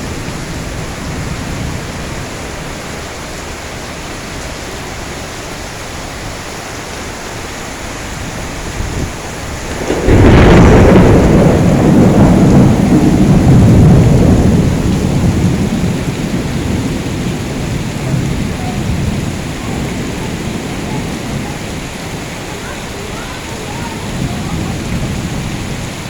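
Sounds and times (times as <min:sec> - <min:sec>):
heavy rain: 0:00.0 - 0:26.0
loud thunderclap rumbling: 0:08.2 - 0:26.0.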